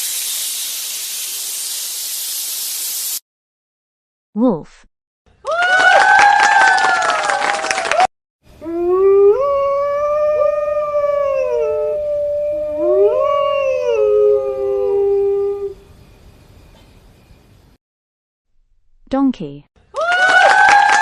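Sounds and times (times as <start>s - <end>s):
wolves howling: 8.6s - 15.8s.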